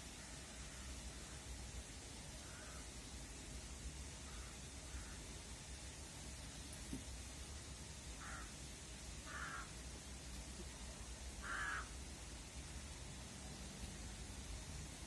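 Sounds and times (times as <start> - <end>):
crow-like bird cawing: 2.4 - 2.9, 4.3 - 5.2, 8.2 - 8.6, 9.2 - 9.8, 11.4 - 12.0.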